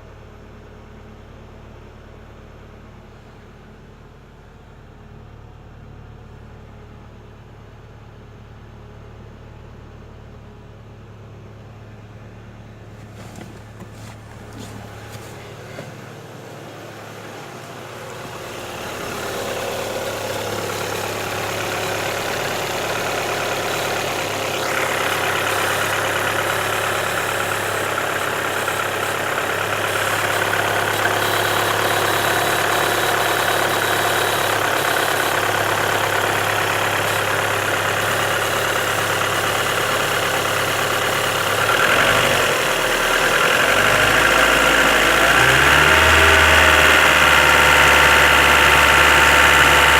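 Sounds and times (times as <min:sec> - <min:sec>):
car engine running: 0:11.8 - 0:49.9
engine knock: 0:12.9 - 0:49.9.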